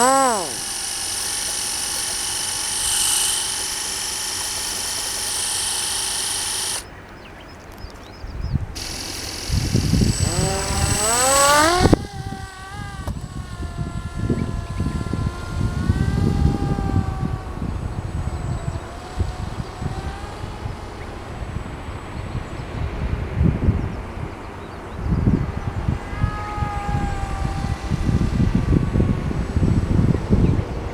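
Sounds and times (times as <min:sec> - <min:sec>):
loud hiss: 0:00.0 - 0:06.8, 0:08.8 - 0:15.0
small motor whine: 0:00.0 - 0:30.9
wind rumble on microphone: 0:11.8 - 0:30.9.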